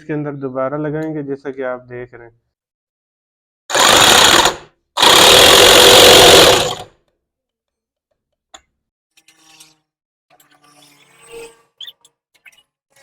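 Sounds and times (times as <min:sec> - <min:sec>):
impact wrench hammering: 0:03.7 - 0:06.8.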